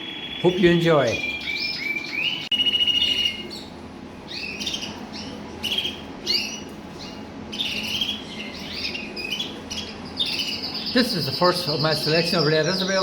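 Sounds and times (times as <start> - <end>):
canaries singing: 0.0 - 13.0.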